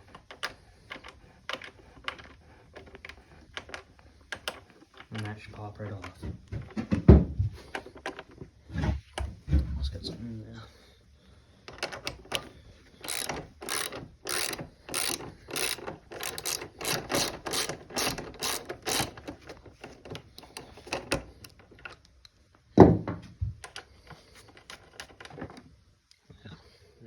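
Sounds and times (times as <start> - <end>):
socket ratchet clicking: 11.7 - 21.6.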